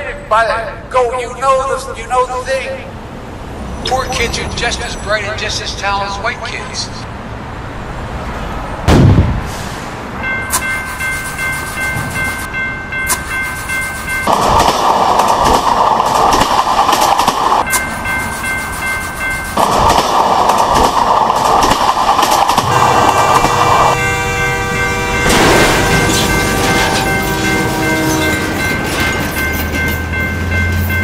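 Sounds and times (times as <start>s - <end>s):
high-speed train rushing on rails: 0.0s - 31.0s
loud low thud: 8.8s - 9.5s
train horn chord: 22.6s - 28.9s.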